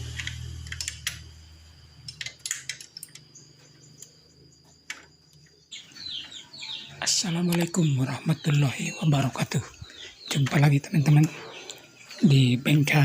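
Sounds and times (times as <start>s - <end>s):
birds chirping: 1.8s - 13.0s.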